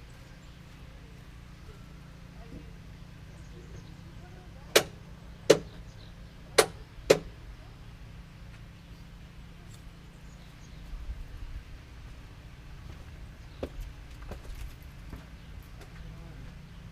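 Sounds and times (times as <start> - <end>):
sharp knocks: 4.8 - 5.8, 6.6 - 7.3.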